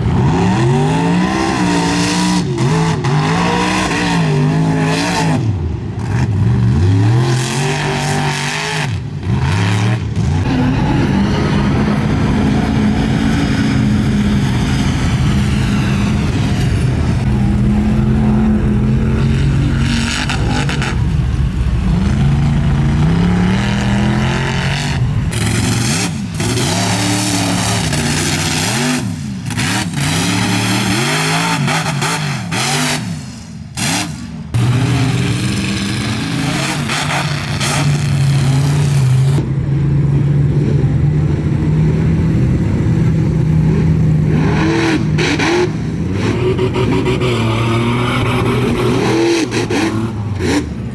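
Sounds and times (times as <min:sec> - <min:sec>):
truck engines revving hard: 0:00.0 - 0:50.9.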